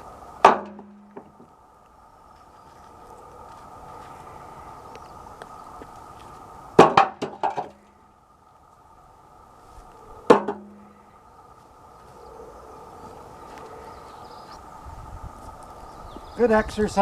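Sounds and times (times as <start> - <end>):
faint steady hum: 0.0 - 17.0
rocks clattering into metal bucket: 6.8 - 7.9.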